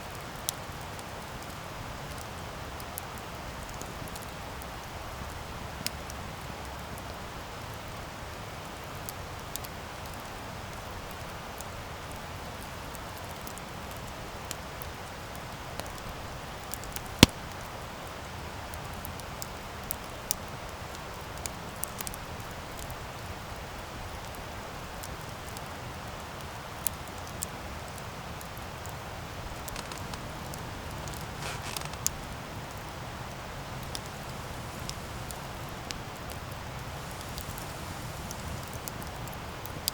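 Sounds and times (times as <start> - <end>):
campfire crackling: 0.0 - 39.9
fire popping and snapping: 8.8 - 39.9.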